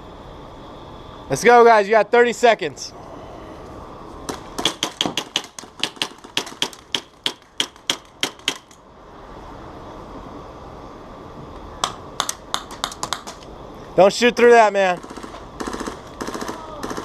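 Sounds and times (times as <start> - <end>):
airsoft guns firing single shots: 15.0 - 17.0.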